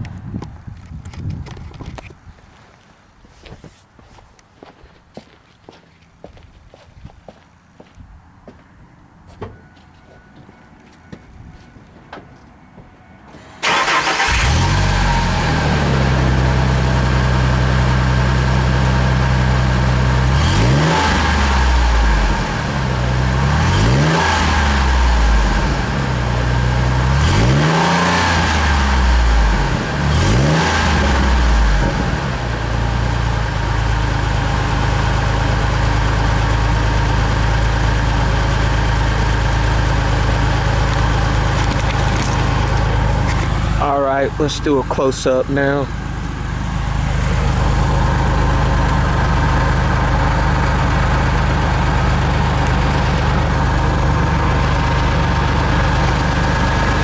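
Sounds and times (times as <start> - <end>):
truck engine idling and revving: 13.2 - 57.0.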